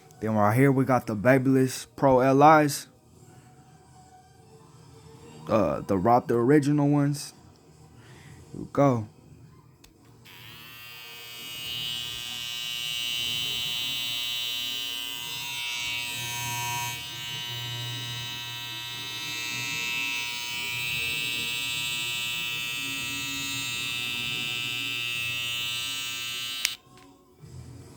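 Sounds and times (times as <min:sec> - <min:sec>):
hair trimmer buzzing: 0:10.2 - 0:27.0.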